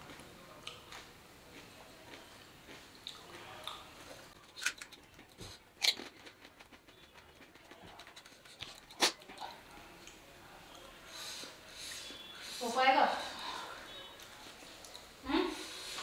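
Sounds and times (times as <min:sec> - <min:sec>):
person chewing crunchy food: 0:00.0 - 0:10.2
soft crunching: 0:00.0 - 0:10.8.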